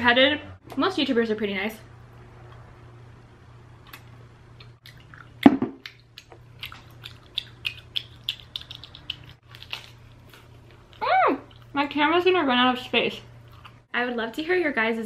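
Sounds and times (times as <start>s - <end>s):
low steady hum: 0.0s - 15.0s
chewing: 4.6s - 11.7s, 13.4s - 13.8s.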